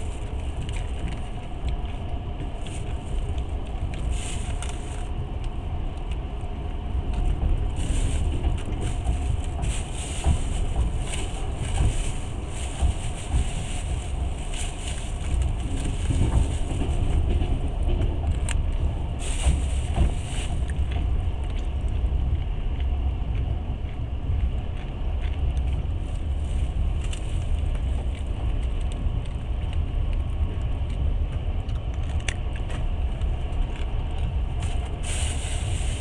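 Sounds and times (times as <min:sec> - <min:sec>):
train wheels rumbling on track: 0:00.0 - 0:36.0
rushing hiss: 0:35.0 - 0:36.0.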